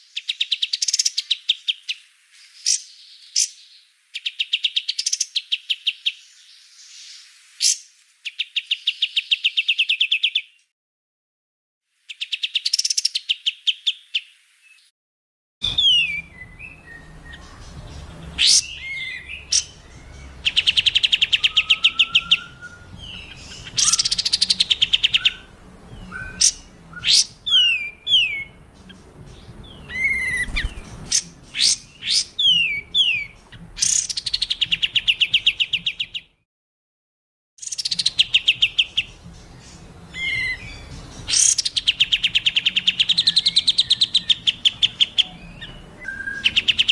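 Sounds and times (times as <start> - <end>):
songbird trills: 15.6 - 36.2, 37.6 - 46.9.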